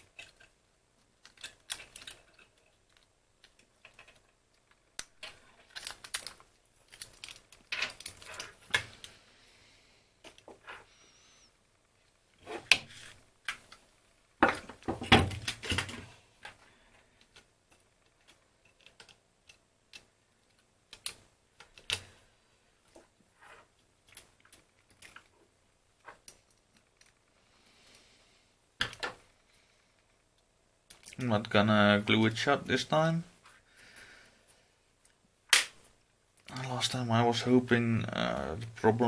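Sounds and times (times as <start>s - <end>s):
plastic clicks and rattles: 17.2s - 22.1s.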